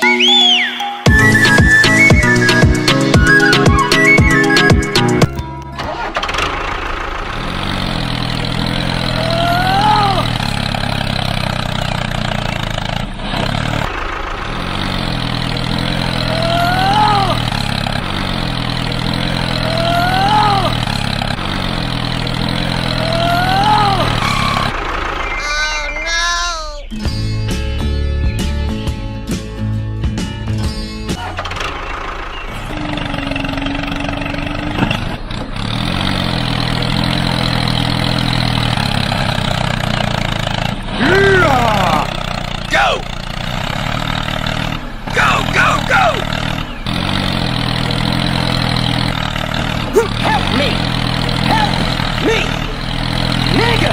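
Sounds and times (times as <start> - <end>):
whistle-like tone: 0.0 - 5.4, 24.2 - 27.0
tractor engine running: 0.0 - 53.9.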